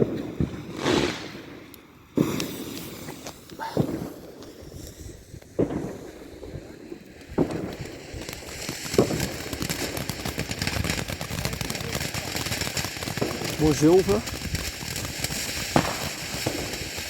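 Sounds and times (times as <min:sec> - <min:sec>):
firework crackling: 0:00.0 - 0:17.0
firework launch thumps: 0:02.2 - 0:06.2, 0:07.2 - 0:11.9, 0:12.5 - 0:17.0.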